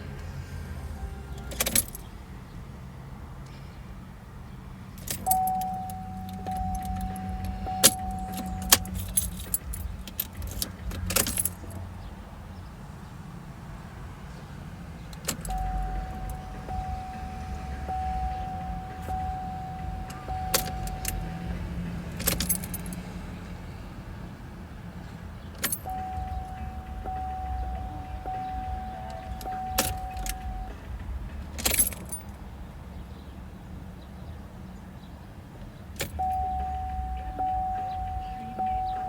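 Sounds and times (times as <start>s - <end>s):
car electronic warning tone: 0.0s - 2.1s, 5.1s - 10.0s, 15.3s - 22.7s, 25.7s - 30.9s, 36.0s - 39.0s
jingling: 0.8s - 2.5s, 4.8s - 12.6s, 15.0s - 23.2s, 25.5s - 32.4s, 36.0s - 39.0s
low hum: 15.4s - 22.6s.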